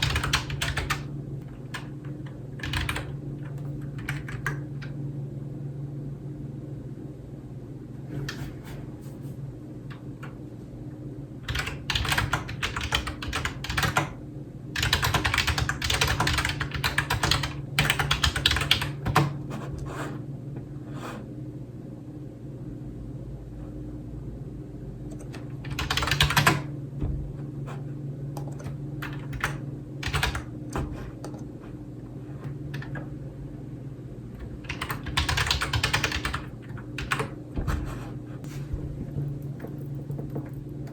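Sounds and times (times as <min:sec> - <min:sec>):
typing on computer keyboard: 0:00.0 - 0:01.1, 0:01.7 - 0:04.7, 0:11.5 - 0:14.2, 0:14.8 - 0:19.4, 0:25.1 - 0:26.7, 0:28.4 - 0:31.5, 0:34.4 - 0:37.4
steady low hum: 0:00.0 - 0:40.9.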